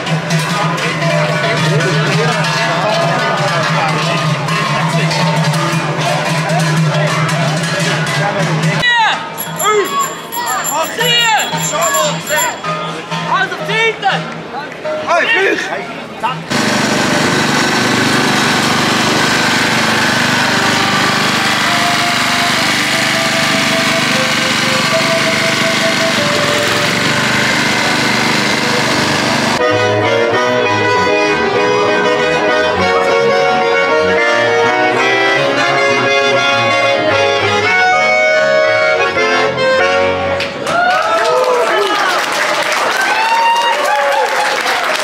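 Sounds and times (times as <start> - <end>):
accordion music: 9.3 - 13.7, 16.5 - 40.4
noisy wash: 16.5 - 29.6.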